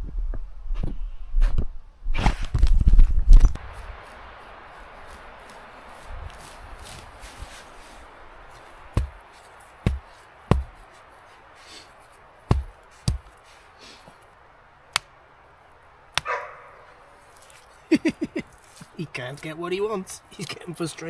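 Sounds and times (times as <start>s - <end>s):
axe chopping wood: 9.0s - 9.2s, 9.8s - 10.8s, 12.5s - 13.4s.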